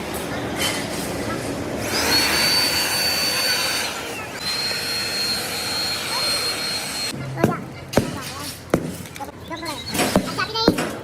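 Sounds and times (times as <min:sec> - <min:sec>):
metal-cutting machine whining: 0:01.8 - 0:07.2.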